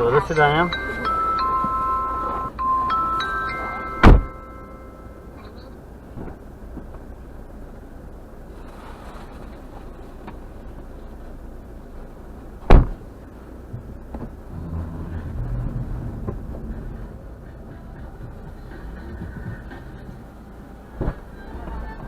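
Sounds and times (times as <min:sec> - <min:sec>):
car rumbling: 0:00.0 - 0:22.0
low hum inside car: 0:00.0 - 0:22.0
car door slamming: 0:04.0 - 0:04.4, 0:12.6 - 0:13.0.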